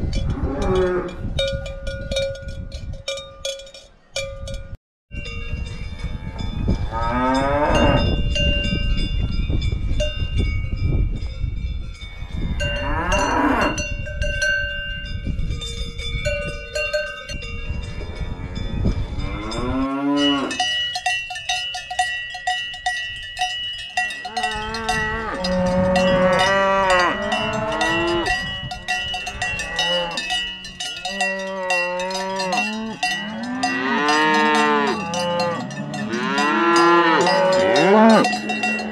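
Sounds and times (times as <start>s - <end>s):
cowbells clanking: 0.0s - 38.9s
cows mooing: 6.8s - 8.1s, 12.6s - 13.8s, 17.9s - 20.6s, 24.2s - 38.9s.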